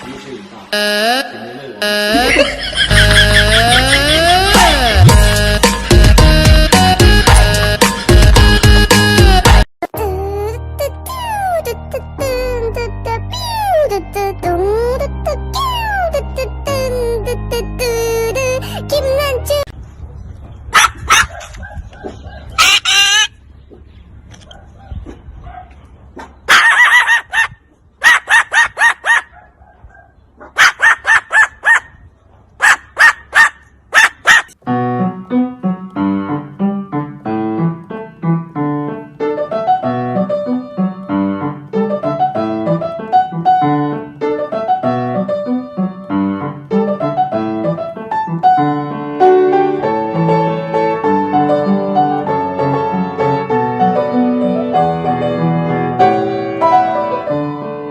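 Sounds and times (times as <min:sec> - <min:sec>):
harsh animal calls: 0:22.1 - 0:23.4
solo piano music: 0:34.6 - 0:57.9.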